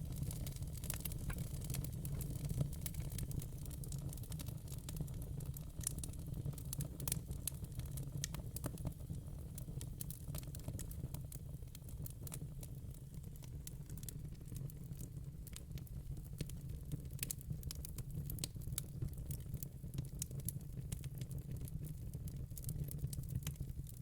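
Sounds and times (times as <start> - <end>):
burning logs crackling: 0.0 - 24.0.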